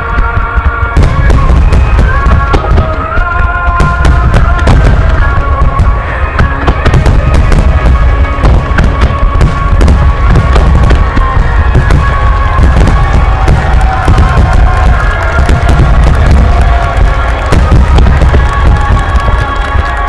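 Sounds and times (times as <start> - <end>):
fireworks bursting: 0.0 - 20.0
music with long held notes: 0.0 - 20.0.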